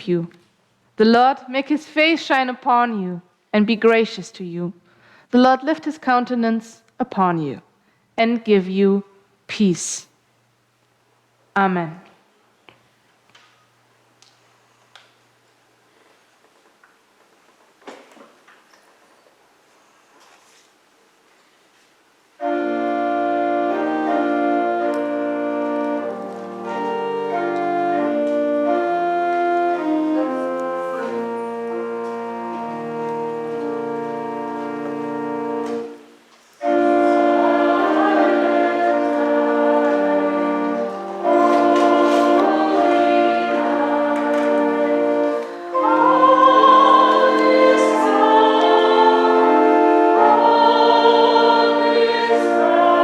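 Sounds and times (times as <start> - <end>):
choir and congregation singing: 22.4 - 53.0
church organ playing chords: 22.4 - 53.0.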